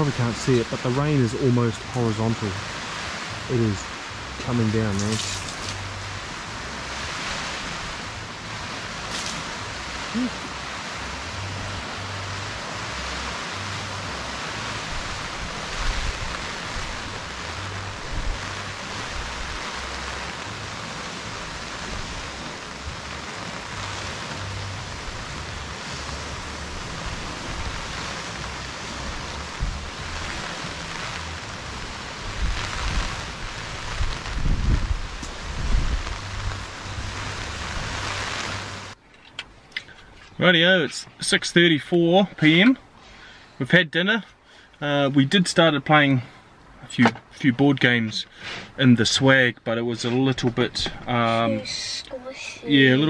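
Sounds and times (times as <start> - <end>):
wind rumble on microphone: 0.0 - 39.0
heavy rain on tent fabric: 0.0 - 43.6, 44.2 - 53.0.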